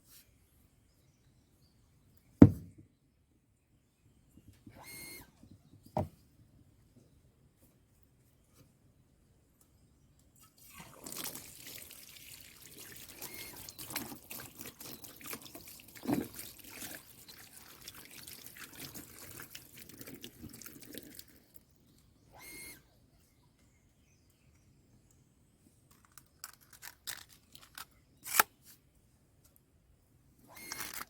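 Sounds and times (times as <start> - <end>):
water pouring and splashing: 10.6 - 21.6.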